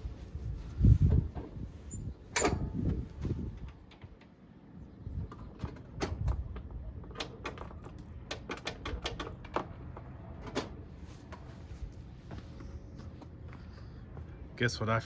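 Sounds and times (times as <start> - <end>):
sharp clicks and light knocks: 5.3 - 11.5.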